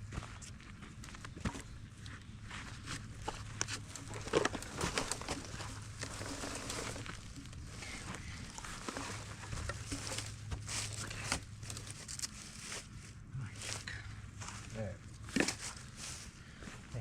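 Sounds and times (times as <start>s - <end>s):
footsteps rustling dry leaves: 2.5s - 16.9s.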